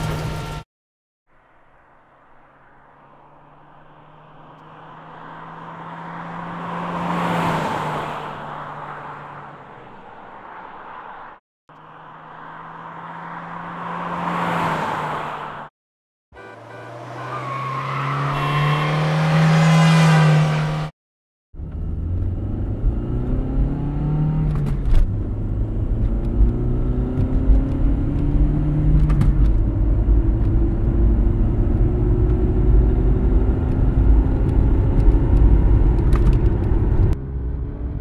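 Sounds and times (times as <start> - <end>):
car driving past: 1.4 - 15.7, 16.8 - 20.9.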